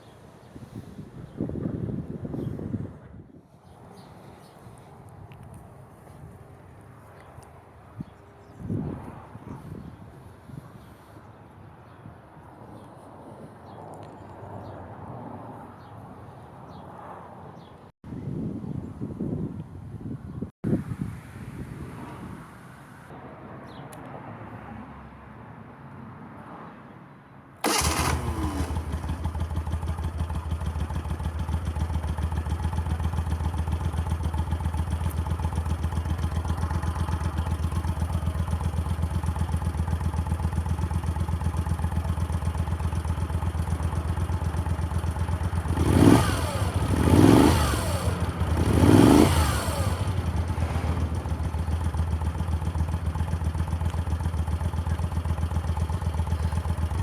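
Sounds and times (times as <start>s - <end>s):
motorcycle engine idling and revving: 27.6s - 57.0s.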